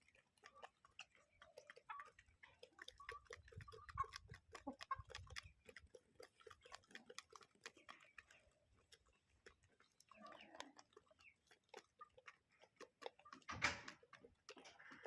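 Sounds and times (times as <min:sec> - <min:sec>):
chickens clucking softly: 0:00.0 - 0:15.0
chickens pecking: 0:00.0 - 0:15.0.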